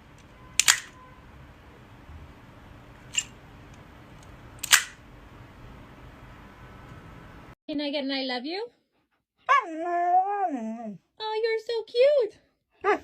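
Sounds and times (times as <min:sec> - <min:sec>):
faint room noise: 0:00.0 - 0:07.6
short sharp clicks: 0:00.2 - 0:01.0, 0:03.1 - 0:05.0.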